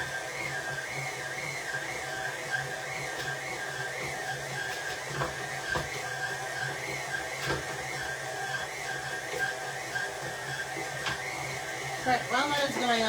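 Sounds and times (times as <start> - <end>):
stand mixer motor whine: 0.0 - 13.0.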